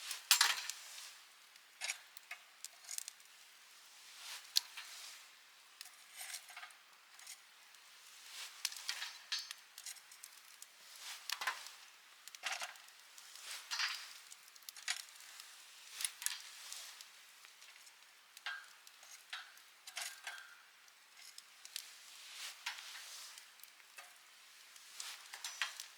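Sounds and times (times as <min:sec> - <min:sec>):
campfire crackling: 0:07.1 - 0:25.9.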